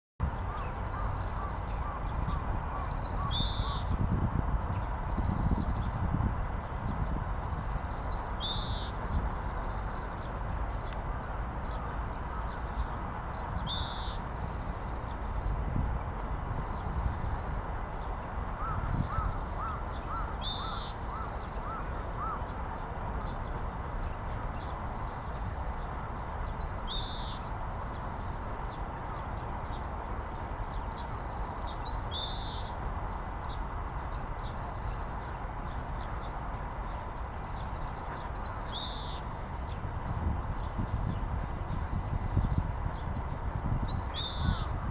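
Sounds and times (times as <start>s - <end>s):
finch singing: 2.3s - 3.9s, 43.9s - 44.9s.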